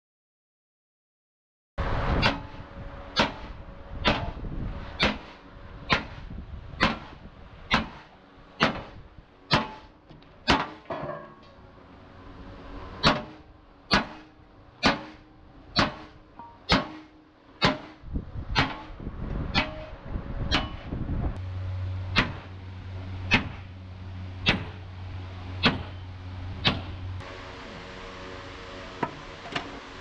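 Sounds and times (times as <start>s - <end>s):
hammer striking steel: 2.2s - 4.4s, 5.0s - 6.2s, 6.8s - 11.5s, 13.0s - 18.0s, 18.6s - 19.9s, 20.5s - 20.9s, 22.1s - 22.6s, 23.2s - 23.7s, 24.4s - 24.8s, 25.6s - 27.0s.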